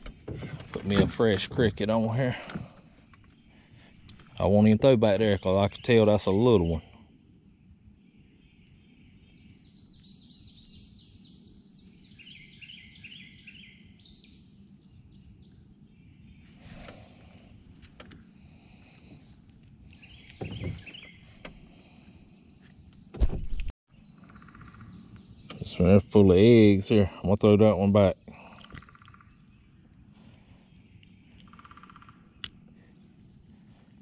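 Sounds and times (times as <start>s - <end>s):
low outdoor hum: 0.0s - 34.0s
birds trilling: 18.2s - 23.2s, 24.0s - 34.0s.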